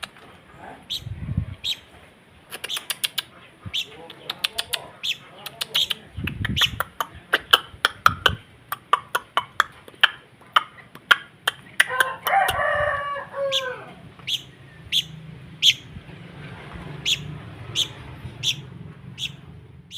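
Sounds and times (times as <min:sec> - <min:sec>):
rooster-like crow: 0:11.9 - 0:14.1.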